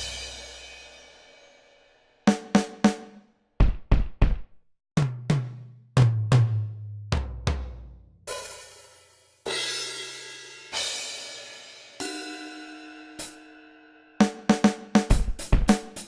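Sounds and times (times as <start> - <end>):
cymbal ringing: 0.0 - 1.6, 8.3 - 14.2
kick drum thumps: 3.6 - 6.5.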